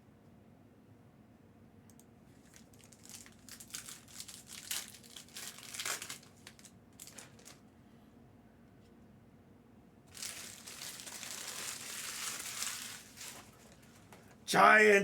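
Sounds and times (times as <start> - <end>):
plastic wrapping crinkling and tearing: 2.4 - 7.6, 10.1 - 14.1.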